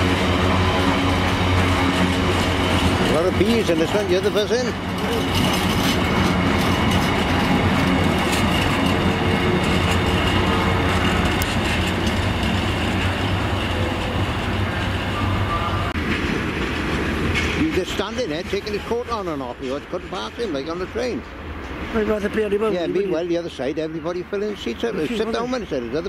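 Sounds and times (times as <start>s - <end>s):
freight train wagons rolling past: 0.0s - 26.0s
wheels clicking: 1.2s - 14.9s.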